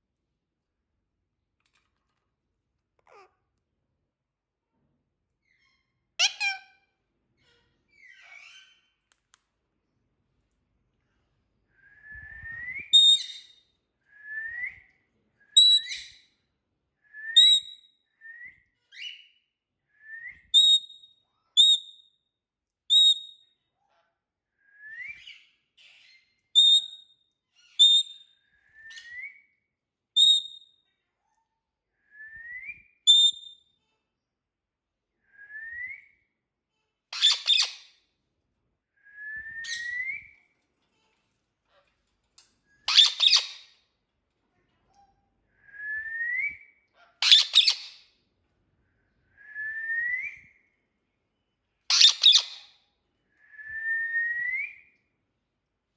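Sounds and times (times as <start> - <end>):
parrot chirping: 3.0 - 3.3, 5.6 - 6.8, 7.4 - 9.0, 12.8 - 13.6, 15.6 - 16.2, 20.5 - 22.0, 25.2 - 27.0, 27.6 - 28.3, 30.2 - 30.6, 33.1 - 33.6, 37.1 - 37.9, 39.6 - 40.4, 42.8 - 43.7, 47.2 - 48.1, 51.9 - 52.7
parrot squawk: 6.2 - 6.8, 37.2 - 37.8, 42.9 - 43.7, 47.1 - 48.0, 51.9 - 52.7
parrot whistling: 42.9 - 43.6, 47.2 - 48.0, 51.9 - 52.6.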